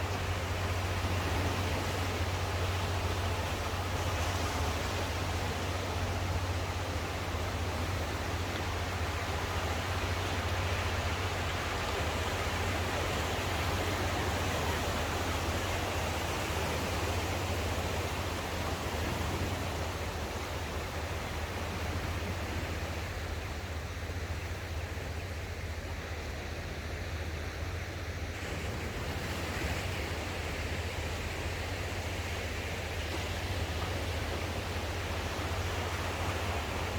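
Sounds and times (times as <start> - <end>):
sea surf washing onto shore: 28.3 - 36.9.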